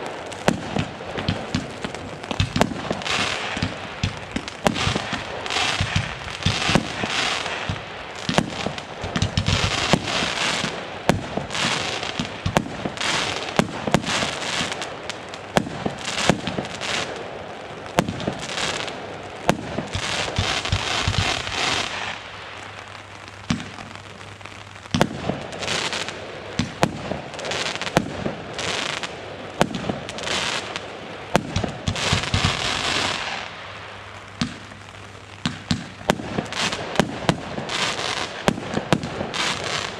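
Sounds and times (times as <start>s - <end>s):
firework bangs: 0.0s - 39.9s
firework crackling: 0.0s - 39.9s.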